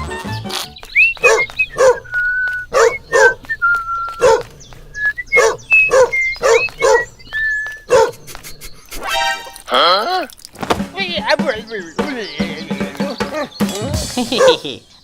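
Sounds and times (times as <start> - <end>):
high whistling melody: 0.0 - 4.3
dog barking: 1.2 - 3.5, 4.1 - 4.7, 5.3 - 7.2, 7.8 - 8.2, 14.3 - 14.7.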